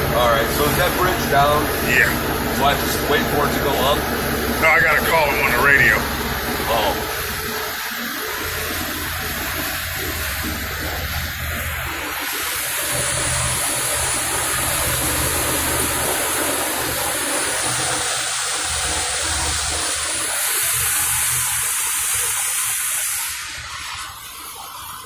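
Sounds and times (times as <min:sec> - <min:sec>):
low throbbing rumble: 0:00.0 - 0:17.6.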